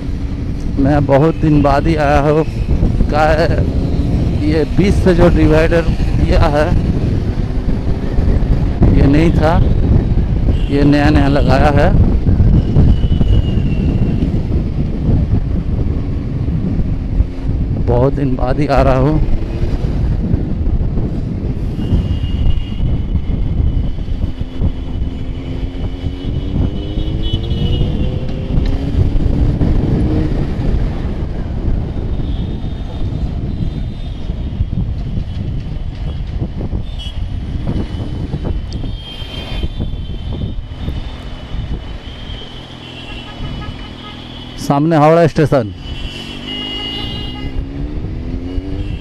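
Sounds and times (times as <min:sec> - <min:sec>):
wind and road rumble: 0:00.0 - 0:49.0
high steady vehicle horns: 0:21.7 - 0:23.2, 0:25.3 - 0:28.4, 0:36.8 - 0:38.2, 0:42.0 - 0:44.6, 0:45.8 - 0:47.8.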